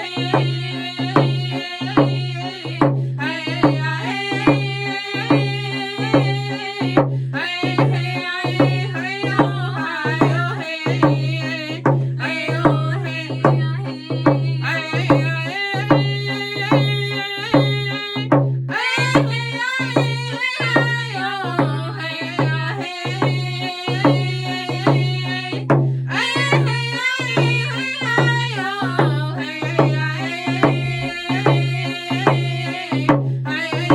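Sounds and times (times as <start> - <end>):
hand drum beat: 0.0 - 33.9
people singing: 0.0 - 33.9.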